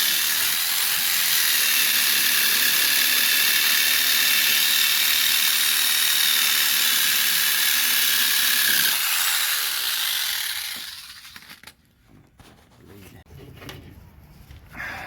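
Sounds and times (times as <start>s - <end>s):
power saw cutting metal: 0.0s - 11.7s.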